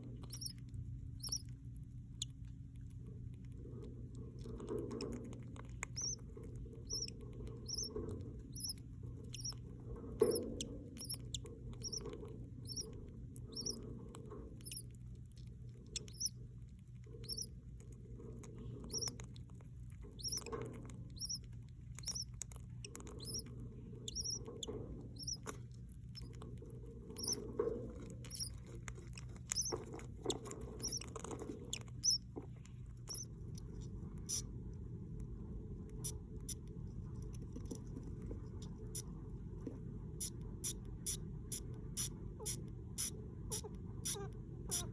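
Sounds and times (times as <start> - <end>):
rustling and scratching in nest: 0.0 - 1.5, 4.0 - 34.4
chicks cheeping: 0.0 - 1.6, 5.8 - 14.9, 15.9 - 16.4, 17.2 - 17.6, 18.7 - 19.2, 20.1 - 25.5, 26.2 - 26.5, 27.1 - 28.6, 29.4 - 32.3, 33.0 - 34.5, 40.2 - 44.9.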